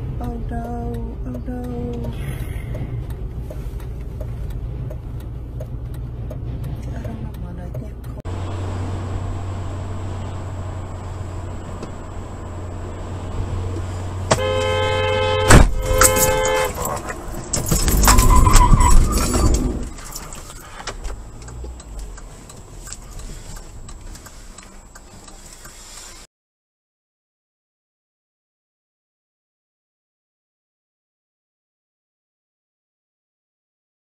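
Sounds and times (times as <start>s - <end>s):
road and engine hum: 0.0s - 26.3s
car horn: 14.3s - 19.7s
loud crash impact: 15.4s - 16.4s.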